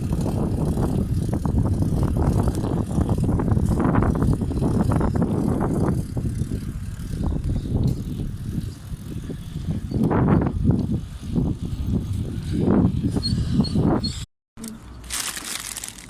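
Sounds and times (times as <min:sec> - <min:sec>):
bicycle tyres rumbling on road: 0:00.0 - 0:14.3, 0:15.0 - 0:16.0
wind buffeting microphone: 0:00.0 - 0:14.3.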